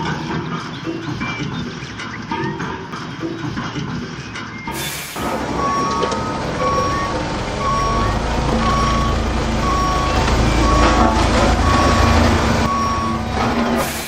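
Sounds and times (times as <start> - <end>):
reversing alarm beeping: 4.6 - 14.0
low engine rumble: 5.2 - 13.8.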